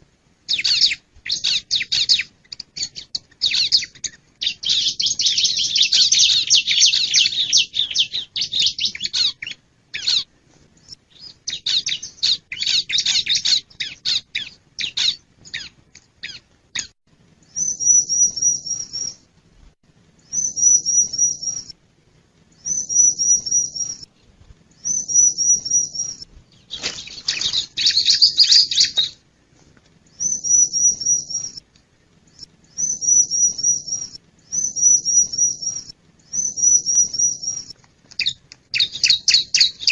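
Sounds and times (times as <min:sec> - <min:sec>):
bird chattering: 0:00.5 - 0:10.3, 0:11.1 - 0:16.9, 0:24.8 - 0:29.2.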